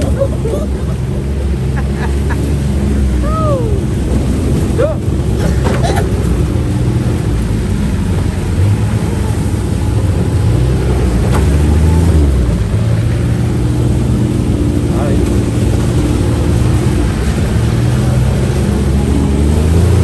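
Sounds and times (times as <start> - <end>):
utility vehicle engine drone: 0.0 - 20.0.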